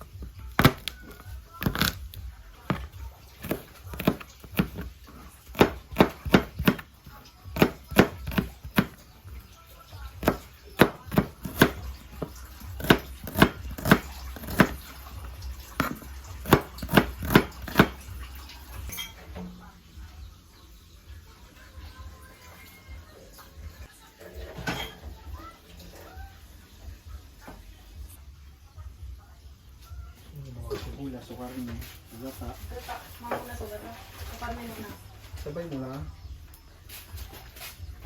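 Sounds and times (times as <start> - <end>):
knife chopping on cutting board: 0.5 - 2.0, 2.7 - 9.0, 10.2 - 15.0, 15.7 - 18.1.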